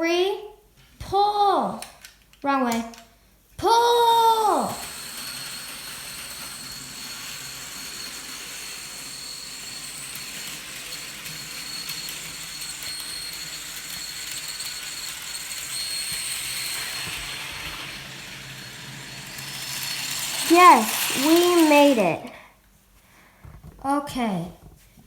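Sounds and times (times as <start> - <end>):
model train motor whine: 3.9 - 22.3
wheels hissing on rail: 4.8 - 22.0.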